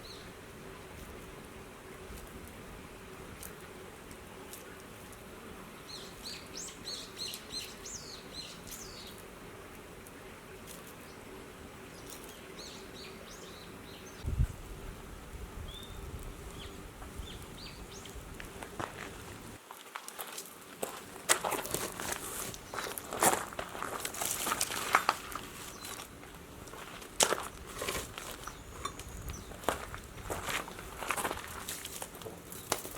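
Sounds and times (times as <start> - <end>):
small birds chirping: 0.0 - 0.3, 4.5 - 9.3, 11.9 - 14.7, 15.6 - 19.6, 25.6 - 26.1, 28.2 - 30.9.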